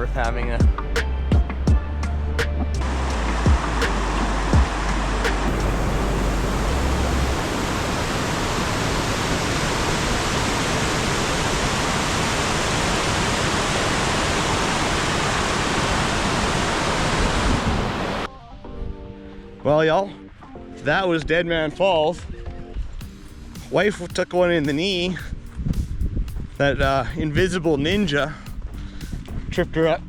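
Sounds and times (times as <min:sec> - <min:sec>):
low rumble: 0:00.0 - 0:10.4
waterfall rushing: 0:02.8 - 0:18.3.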